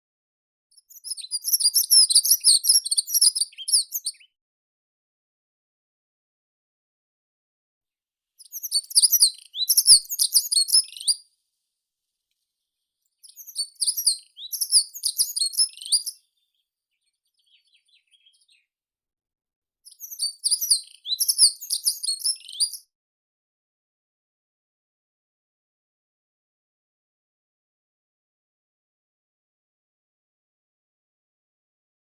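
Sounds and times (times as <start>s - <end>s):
songbird twittering song: 0.8s - 4.4s, 8.4s - 11.2s, 13.1s - 18.7s, 19.9s - 22.9s.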